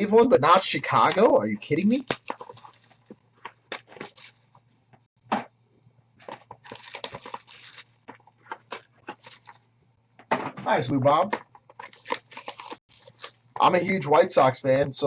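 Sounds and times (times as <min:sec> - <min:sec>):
packaging crinkling and rustling: 0:01.0 - 0:04.7, 0:06.2 - 0:09.7, 0:11.2 - 0:14.1.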